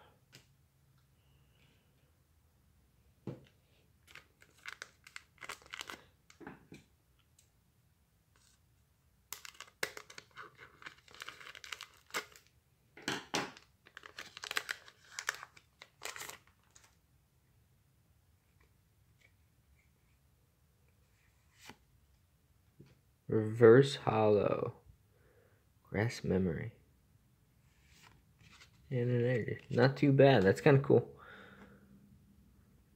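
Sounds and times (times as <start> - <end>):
card pack wrapper tearing and crinkling: 4.0 - 6.2, 9.3 - 12.5, 13.5 - 17.0.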